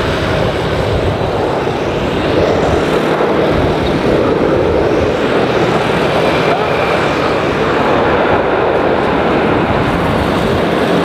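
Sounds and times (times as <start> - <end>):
jet engines of landing airliner: 0.0 - 11.0.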